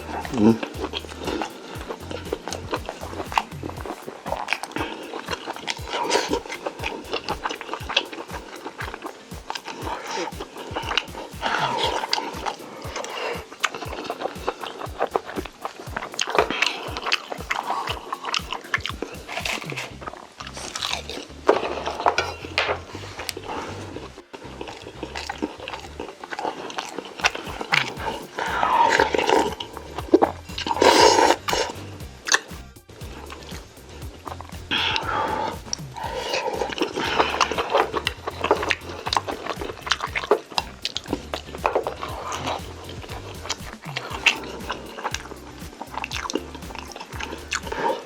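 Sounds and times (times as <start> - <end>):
chewing: 0.0 - 32.5, 33.1 - 48.0
mouth clicks: 0.0 - 48.0
person chewing crunchy food: 34.3 - 48.0.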